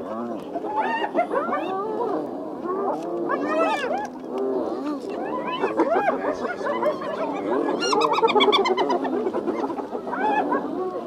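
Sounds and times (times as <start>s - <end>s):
hyenas giggling and whooping: 0.5s - 11.0s.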